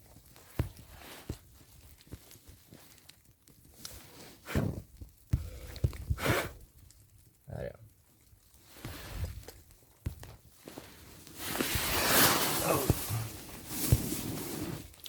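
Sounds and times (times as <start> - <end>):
rustling and scuffing: 10.4 - 14.9.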